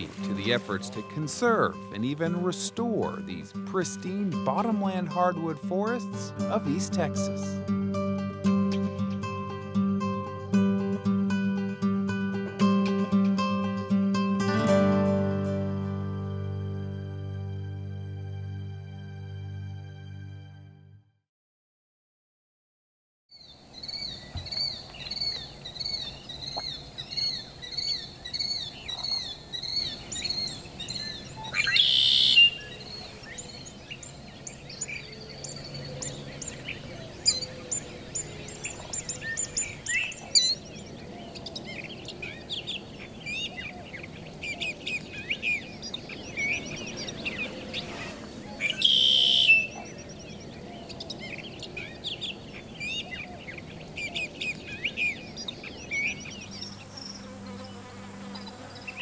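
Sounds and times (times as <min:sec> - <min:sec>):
birds chirping and trilling: 0:00.0 - 0:07.6, 0:08.2 - 0:10.5, 0:23.3 - 0:59.0
loud harsh bird call: 0:27.1 - 0:40.6, 0:43.2 - 0:50.2.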